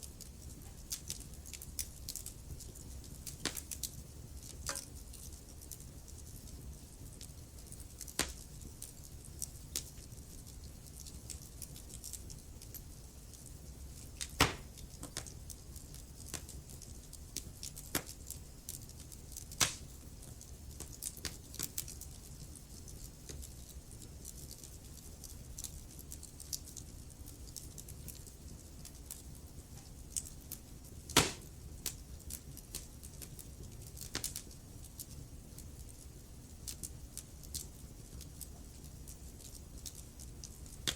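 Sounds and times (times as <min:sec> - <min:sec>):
low rumble of flames: 0:00.0 - 0:40.9
wood fire crackling: 0:00.0 - 0:40.9
logs popping and snapping: 0:14.2 - 0:15.3, 0:19.6 - 0:19.8, 0:31.1 - 0:31.5.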